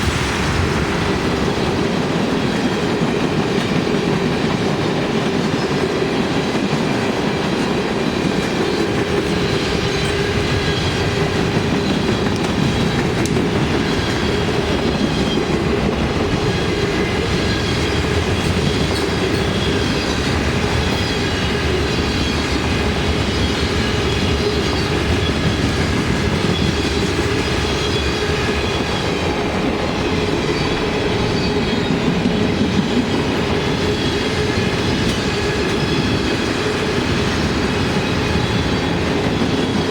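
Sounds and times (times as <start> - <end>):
train wheels rumbling on rails: 0.0 - 39.9
high wheel squeal: 16.3 - 39.9.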